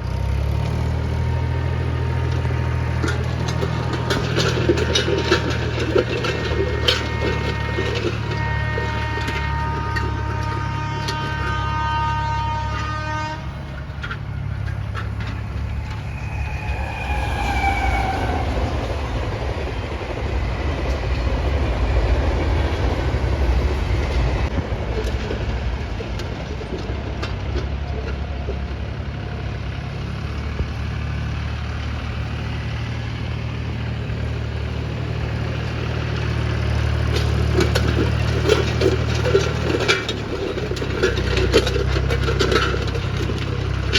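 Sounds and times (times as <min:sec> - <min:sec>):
tractor diesel engine under load: 0:00.0 - 0:43.9
horn-like tone: 0:06.9 - 0:13.7, 0:15.4 - 0:19.7
falling tone: 0:14.7 - 0:20.8.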